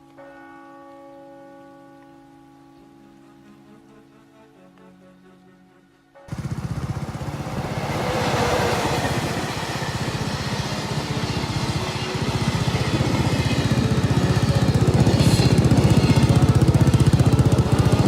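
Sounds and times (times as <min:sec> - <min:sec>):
motorcycle exhaust pulsing: 0:06.3 - 0:18.0.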